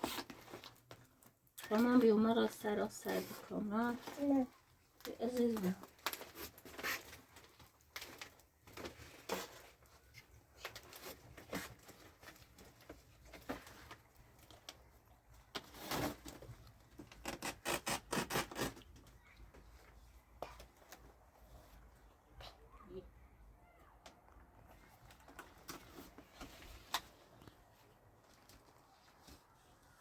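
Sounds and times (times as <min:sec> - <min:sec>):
plastic bags rustling: 0:00.0 - 0:17.4.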